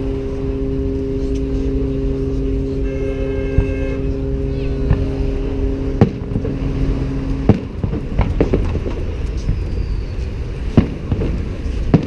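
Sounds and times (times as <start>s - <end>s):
low multi-pitched hum: 0.0s - 12.0s
low rumble: 0.0s - 12.0s
firework bangs: 5.9s - 12.0s.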